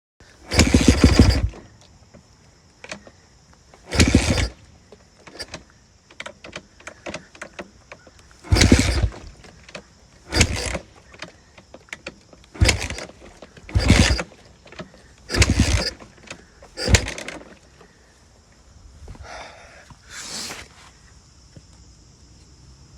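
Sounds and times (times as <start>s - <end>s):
motorcycle engine failing to start: 0.2s - 18.2s.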